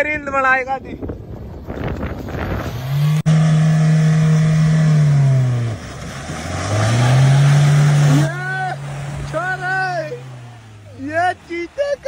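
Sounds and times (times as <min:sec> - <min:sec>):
engine revving hard: 0:02.4 - 0:10.9.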